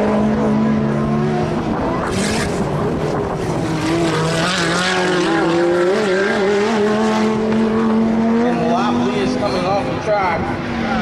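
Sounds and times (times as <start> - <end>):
race car engines running: 0.0 - 11.0.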